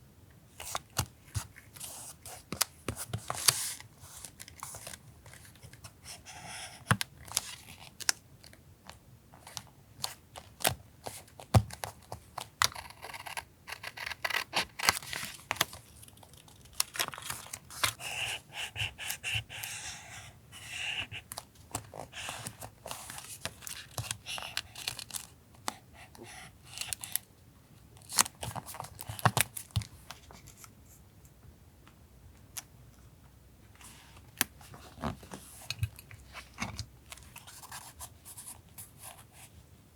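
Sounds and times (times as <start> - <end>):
paper rustling and crinkling: 14.6 - 18.0.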